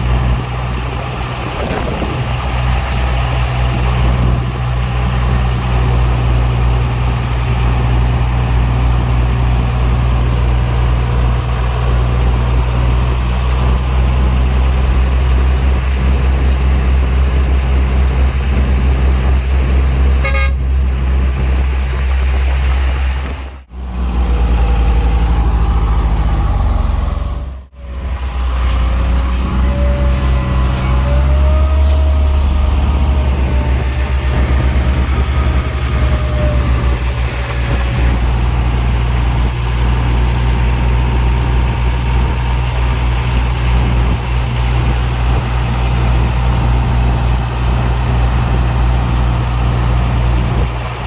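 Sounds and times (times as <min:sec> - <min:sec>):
heavy diesel engine running: 0:00.0 - 0:51.0
horn toot: 0:20.2 - 0:20.7.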